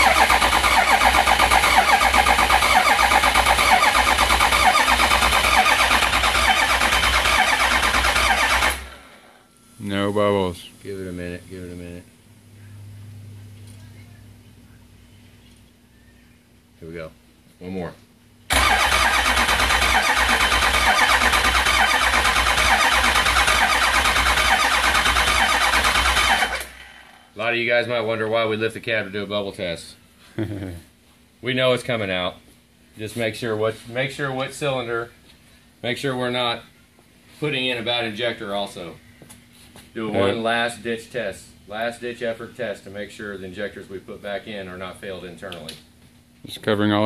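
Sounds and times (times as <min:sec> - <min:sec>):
diesel engine cranking: 0:00.0 - 0:09.2, 0:18.5 - 0:27.0.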